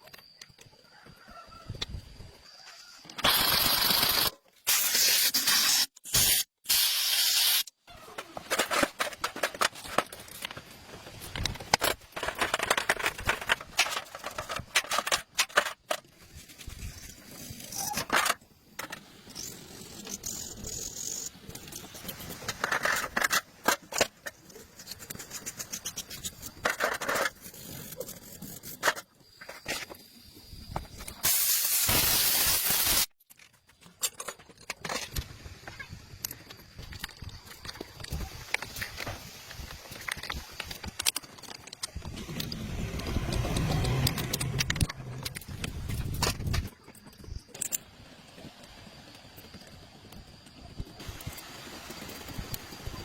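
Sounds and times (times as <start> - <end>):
hissing spray: 3.3 - 7.7, 31.1 - 33.1.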